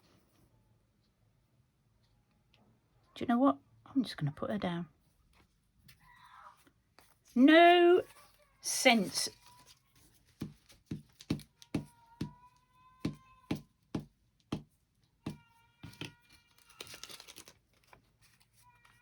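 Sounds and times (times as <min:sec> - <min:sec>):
paper rustling: 0:08.0 - 0:12.3, 0:15.8 - 0:19.0.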